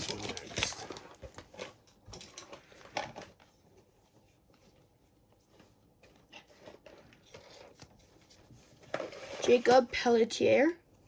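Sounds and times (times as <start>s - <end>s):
cards and wrapper rustling: 0.0s - 1.8s.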